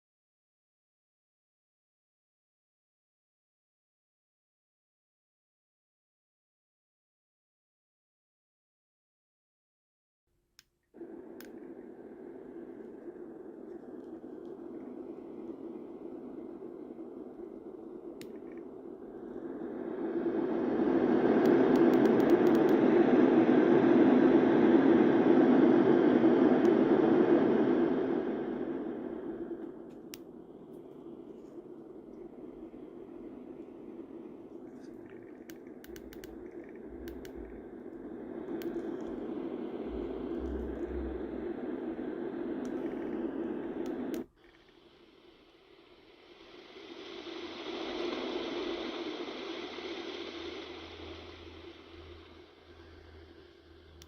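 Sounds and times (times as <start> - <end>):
faint clicks: 10.6 - 23.0, 28.5 - 45.0
bright hiss: 11.0 - 54.0
white noise machine rushing: 11.0 - 54.0.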